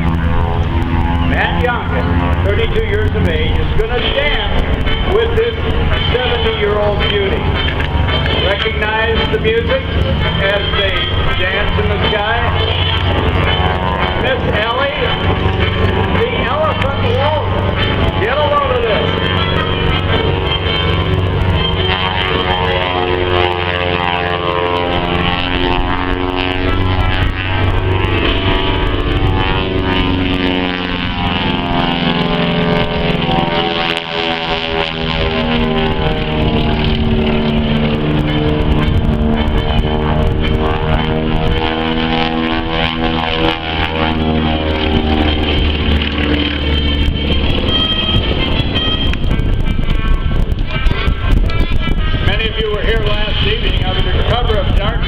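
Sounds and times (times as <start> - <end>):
music playing: 0.0 - 28.7
airplane radial engines running: 0.0 - 55.0.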